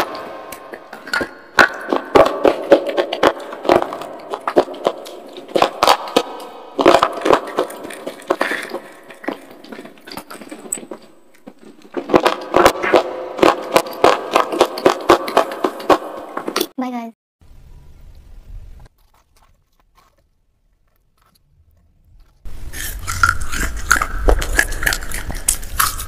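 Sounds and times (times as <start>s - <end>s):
crunching of chalky pencil: 18.9s - 26.0s.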